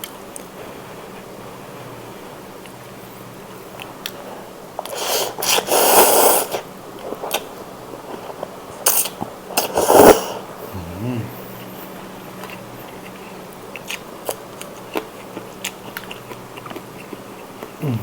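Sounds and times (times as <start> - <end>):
person slurping noodles: 4.9 - 6.6, 8.9 - 11.3.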